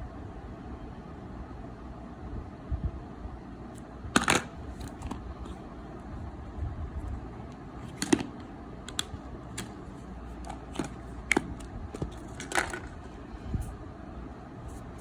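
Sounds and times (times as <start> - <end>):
steady low hum: 0.0 - 15.0
smartphone handling clicks and taps: 7.5 - 12.9.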